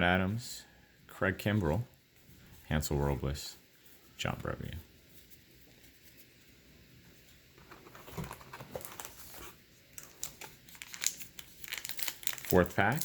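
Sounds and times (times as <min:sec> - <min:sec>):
wrapper crinkling: 0:08.0 - 0:13.0.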